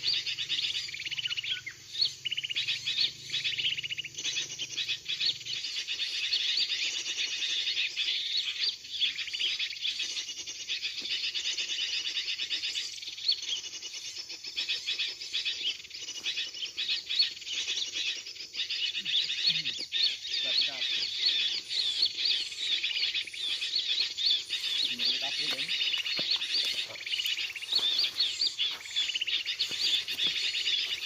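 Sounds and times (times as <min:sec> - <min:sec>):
small birds chirping and chattering: 0:00.0 - 0:31.0
bulbul lure call: 0:16.4 - 0:31.0.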